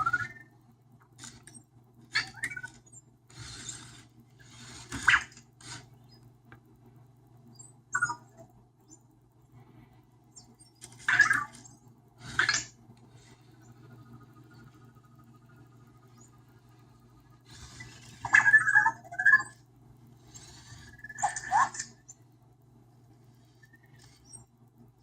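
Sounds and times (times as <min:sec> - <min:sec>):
robot squeaky electronic chirps: 0:00.0 - 0:00.5, 0:07.9 - 0:08.5, 0:11.0 - 0:12.7, 0:17.5 - 0:19.6, 0:20.6 - 0:22.0.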